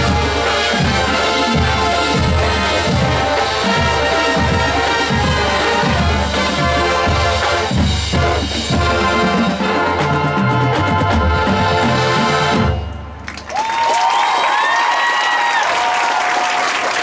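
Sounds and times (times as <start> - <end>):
bass drums beating: 0.0 - 13.3
brass section playing: 0.0 - 13.5.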